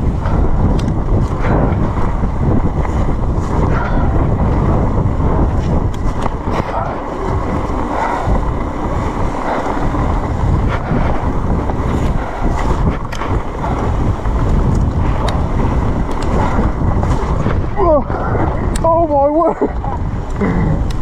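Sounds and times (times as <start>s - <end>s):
bike clicks and rattles: 0.0s - 21.0s
mountain bike rumbling on trail: 0.0s - 21.0s
wind buffeting microphone: 0.0s - 21.0s.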